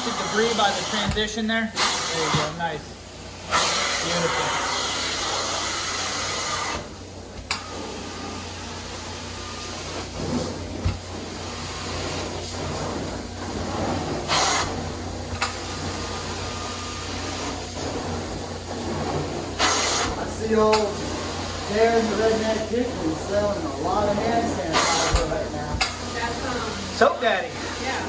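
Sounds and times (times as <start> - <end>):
extraction wand hissing suction: 0.0 - 28.0.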